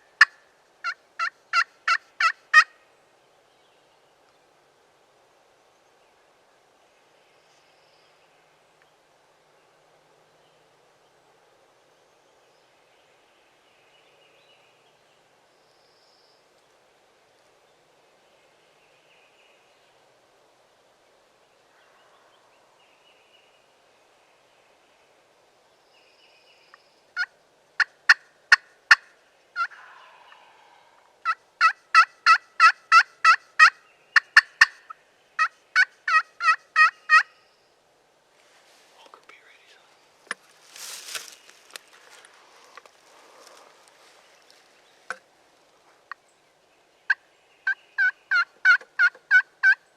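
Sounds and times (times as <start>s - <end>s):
faint distant birds: 0.0s - 49.9s
turkey yelping: 0.2s - 2.7s, 27.2s - 34.8s, 35.4s - 37.3s, 47.6s - 49.8s.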